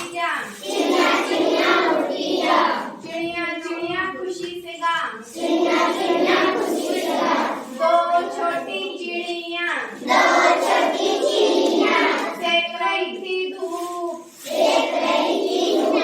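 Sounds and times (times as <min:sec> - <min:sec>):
children singing in chorus: 0:00.5 - 0:03.1, 0:05.3 - 0:09.0, 0:10.0 - 0:12.6, 0:14.4 - 0:16.0.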